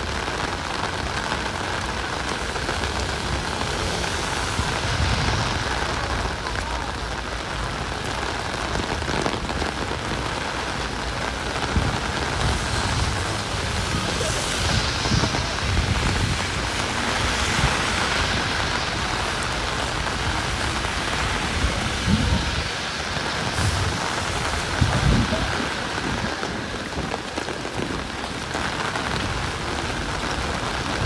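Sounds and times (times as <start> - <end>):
heavy rain hitting ground: 0.0 - 31.0.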